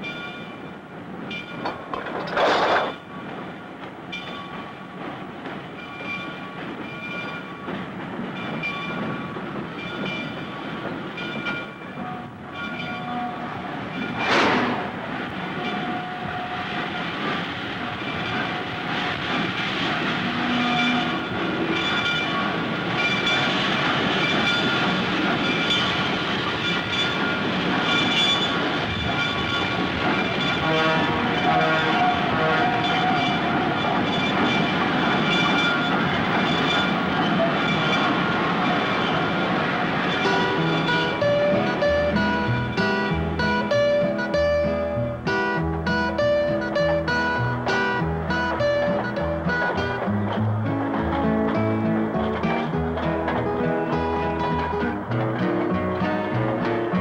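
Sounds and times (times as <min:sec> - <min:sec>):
freight train clickety-clack: 0:00.0 - 0:57.0.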